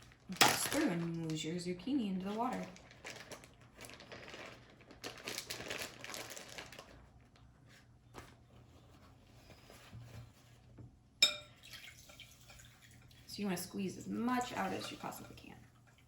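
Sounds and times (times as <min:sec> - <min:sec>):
paper towels rustling and crinkling: 0:00.0 - 0:10.6.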